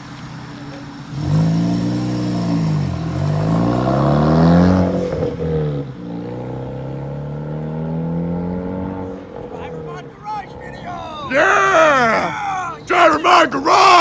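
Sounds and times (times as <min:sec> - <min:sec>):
turbo car accelerating past: 0:01.1 - 0:09.8.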